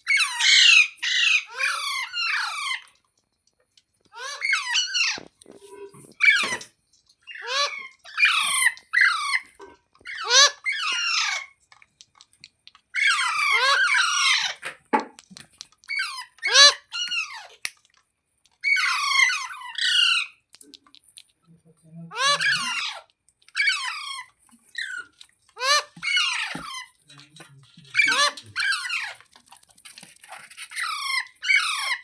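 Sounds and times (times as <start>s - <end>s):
parrot screeching calls: 0.0s - 2.9s, 4.2s - 5.3s, 7.3s - 11.5s, 12.9s - 14.6s, 15.9s - 17.6s, 18.6s - 20.4s, 22.1s - 27.0s, 28.0s - 29.2s, 30.6s - 32.0s.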